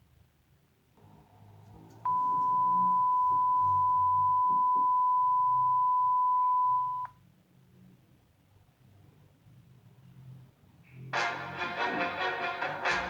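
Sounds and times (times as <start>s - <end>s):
censor beep tone: 2.1s - 7.1s.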